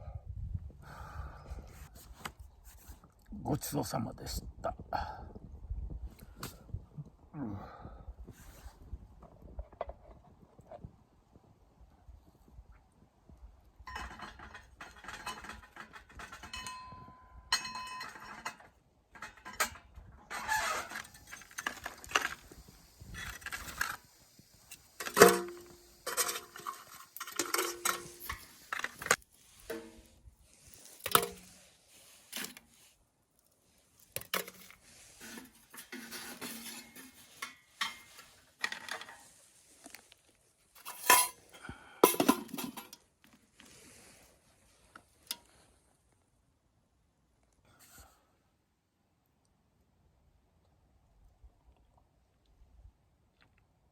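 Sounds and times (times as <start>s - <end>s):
metal cookware clinking and clattering: 13.9s - 19.8s, 25.0s - 28.8s, 35.2s - 39.2s, 40.8s - 41.4s, 42.0s - 43.0s.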